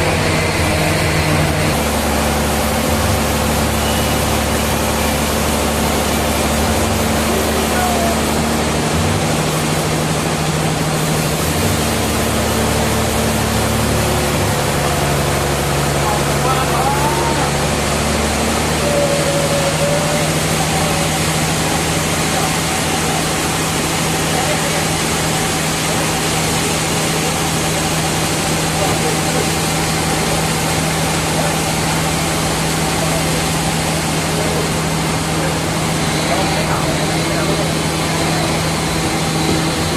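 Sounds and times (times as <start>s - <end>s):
machinery running: 0.0s - 39.9s.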